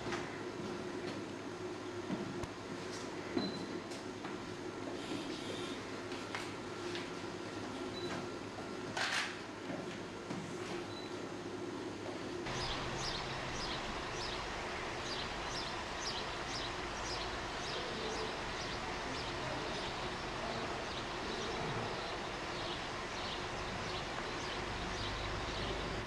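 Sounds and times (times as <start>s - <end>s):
outdoor background hiss and rumble: 0.0s - 26.0s
small bird chirping: 12.5s - 20.0s.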